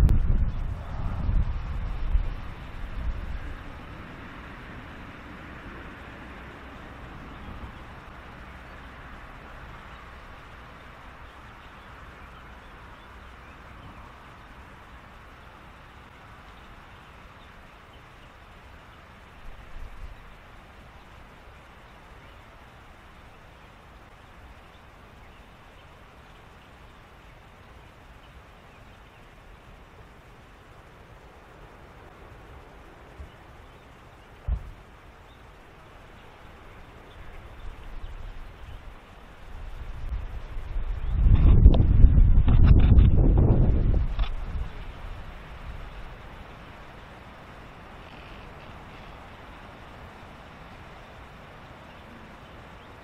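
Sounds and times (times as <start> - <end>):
low rumble: 0.0 - 4.0
wind on microphone: 0.0 - 8.8, 34.3 - 34.9, 36.2 - 53.0
steady low hiss: 0.0 - 53.0
wind rumbling on microphone: 0.0 - 53.0
low thump: 34.4 - 34.8
animal and bird calls: 47.8 - 49.8.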